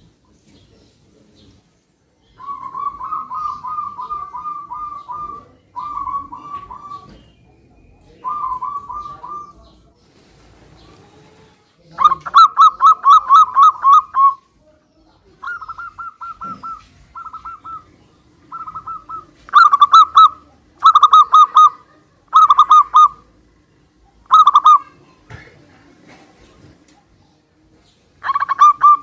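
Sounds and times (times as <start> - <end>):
doves cooing: 2.3 - 14.5, 15.3 - 25.0, 28.2 - 29.0.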